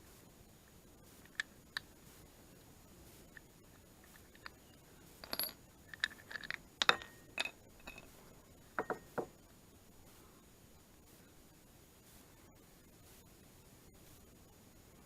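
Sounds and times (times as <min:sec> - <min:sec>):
small metal parts clinking: 0:05.2 - 0:08.1.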